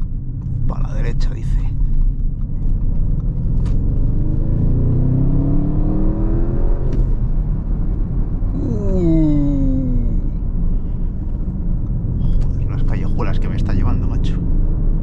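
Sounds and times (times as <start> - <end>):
car engine accelerating: 1.6 - 15.0.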